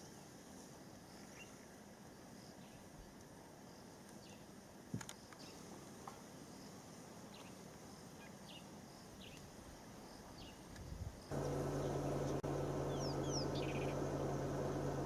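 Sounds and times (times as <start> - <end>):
bush ambience: 0.1 - 15.0
steady low hum: 11.3 - 15.0.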